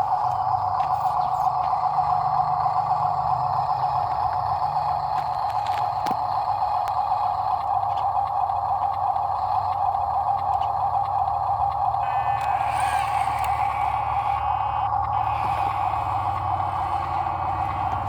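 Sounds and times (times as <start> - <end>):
heavy diesel machinery running: 0.0 - 18.0
higher-pitched machine sound: 12.0 - 18.0.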